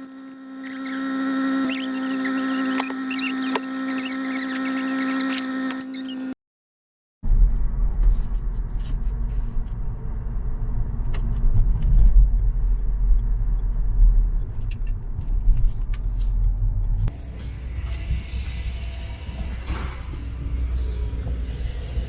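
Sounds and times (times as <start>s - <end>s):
car road and engine noise: 7.2s - 22.0s.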